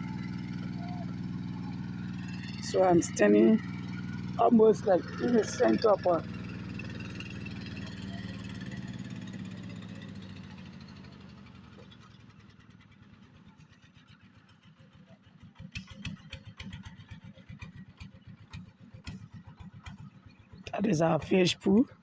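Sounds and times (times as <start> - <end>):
machine engine running: 0.0 - 11.8.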